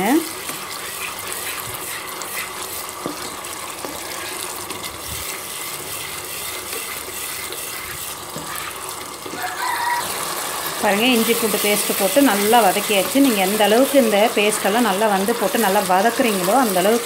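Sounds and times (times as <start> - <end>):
paste sizzling in oil: 0.0 - 17.0
spatula scraping and tapping: 0.4 - 9.4.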